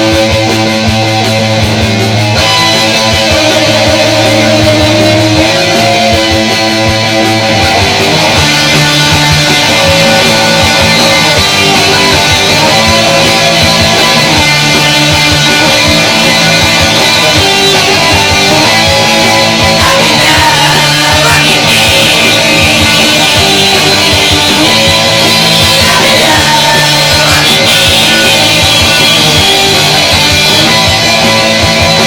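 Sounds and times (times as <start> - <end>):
loud rock music: 0.0 - 32.0.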